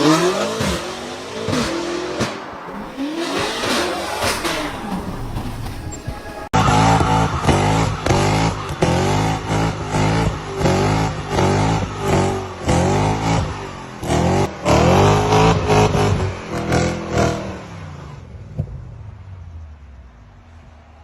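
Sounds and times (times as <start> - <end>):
car engine revving: 0.0 - 17.7.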